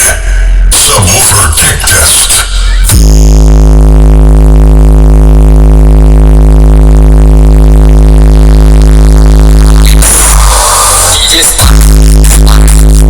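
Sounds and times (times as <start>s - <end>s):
loud bass synthesizer note: 0.0s - 13.0s.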